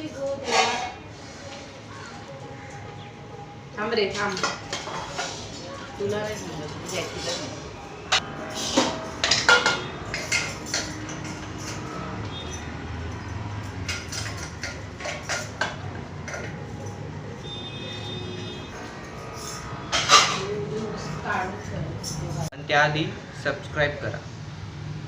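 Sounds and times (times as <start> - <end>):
clatter of dishes and utensils: 0.1 - 1.7, 4.1 - 17.6, 18.3 - 21.2, 21.9 - 22.6.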